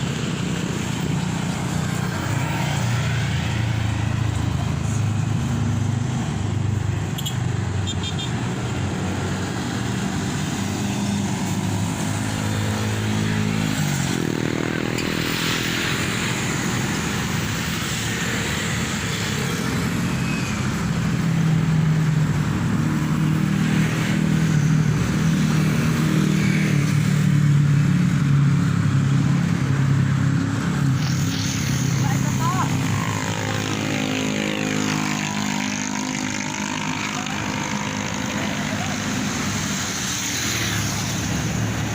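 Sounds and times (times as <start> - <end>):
vehicle engine speeding up: 8.5 - 41.9.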